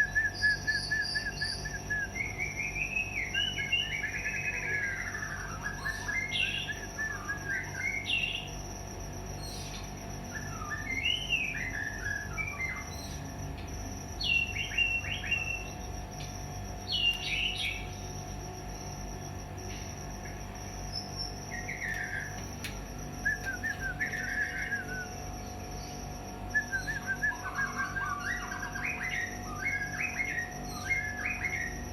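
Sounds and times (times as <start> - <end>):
songbird whistling phrases: 0.0 - 8.5, 10.3 - 13.3, 23.2 - 25.2, 26.5 - 31.8
steady high-pitched tone: 2.4 - 31.9.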